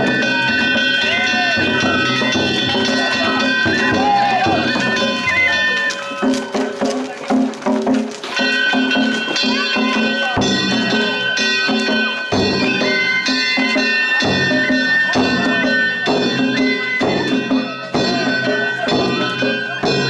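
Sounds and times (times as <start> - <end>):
drums beating steadily: 0.0 - 20.0.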